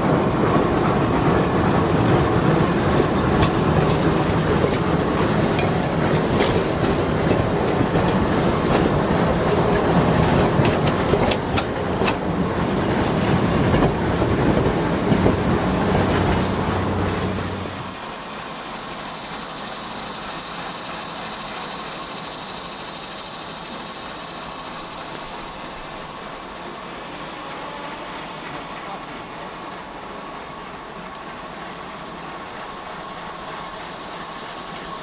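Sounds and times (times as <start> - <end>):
wheels clicking over rail joints: 0.0 - 18.8
steam train rumbling past: 0.0 - 35.0.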